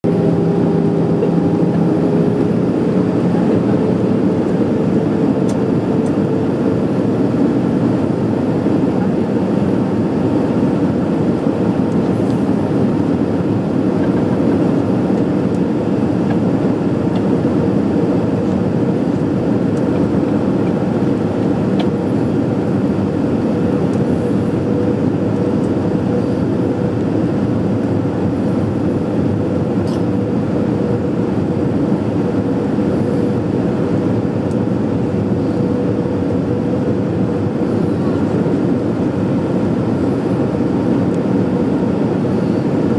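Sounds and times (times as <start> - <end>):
airplane cabin engine and air noise: 0.0 - 42.9.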